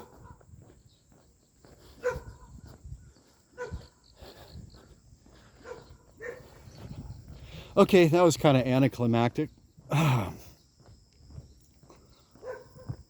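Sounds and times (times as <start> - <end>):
dog barking: 0.0 - 0.4, 2.0 - 2.5, 3.5 - 4.0, 5.6 - 6.6, 12.4 - 13.0.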